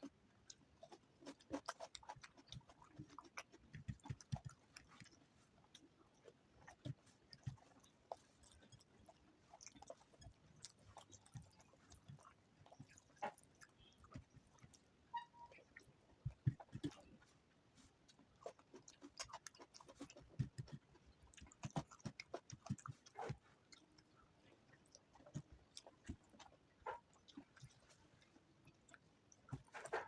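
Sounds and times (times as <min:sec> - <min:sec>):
food crunch: 0:00.0 - 0:14.8
chewing and mouth smacks: 0:00.0 - 0:30.0.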